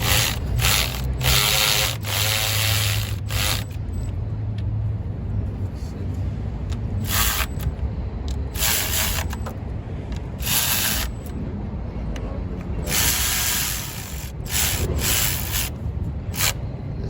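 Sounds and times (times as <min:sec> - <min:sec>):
power ratchet gun bursts: 0:00.0 - 0:03.8, 0:07.0 - 0:07.6, 0:08.5 - 0:09.4, 0:10.4 - 0:11.3, 0:12.9 - 0:15.7, 0:16.3 - 0:16.6
steady low hum: 0:00.0 - 0:17.0.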